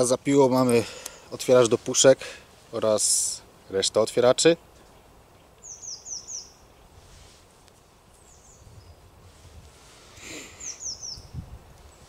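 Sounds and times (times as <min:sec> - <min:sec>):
small bird chirping: 0:04.8 - 0:06.9, 0:08.1 - 0:09.0, 0:10.5 - 0:12.0
faint rustle: 0:06.5 - 0:12.0.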